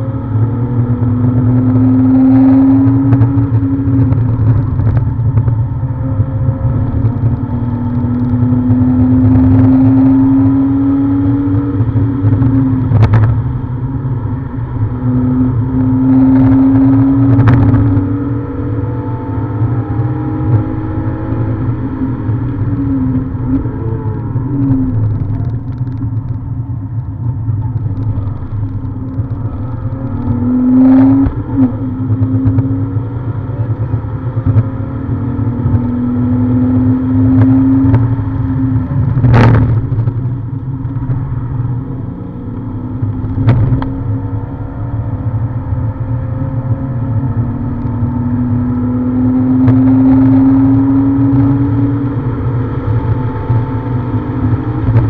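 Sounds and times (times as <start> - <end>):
car engine revving: 0.0 - 55.0
road and wind noise: 0.0 - 55.0.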